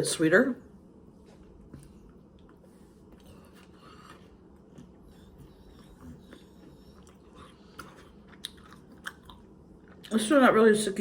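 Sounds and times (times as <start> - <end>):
chewing mouth sounds: 2.0 - 10.1.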